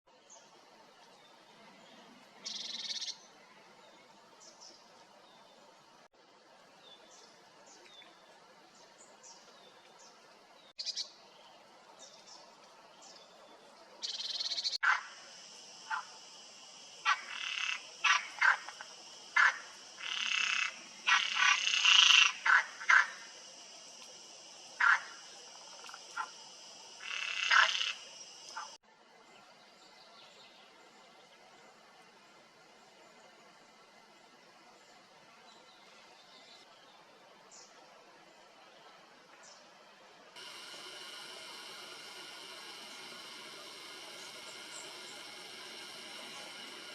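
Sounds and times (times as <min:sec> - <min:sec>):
faint chirping calls: 0:02.4 - 0:03.3, 0:40.4 - 0:46.9
high-pitched frog chorus: 0:14.0 - 0:16.4, 0:17.0 - 0:23.5, 0:24.7 - 0:28.8
frogs croaking: 0:14.0 - 0:28.8, 0:40.4 - 0:46.9.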